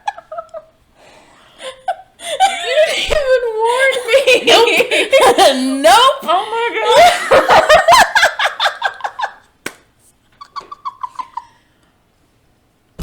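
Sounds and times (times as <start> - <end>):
person giggling: 1.6 - 9.3
high-pitched laughter: 1.6 - 9.4, 10.4 - 11.5.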